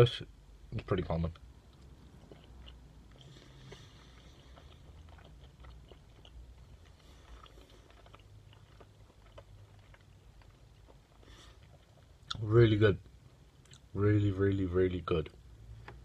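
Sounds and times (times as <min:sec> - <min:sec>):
person chewing food: 0:01.4 - 0:12.4, 0:13.3 - 0:13.9.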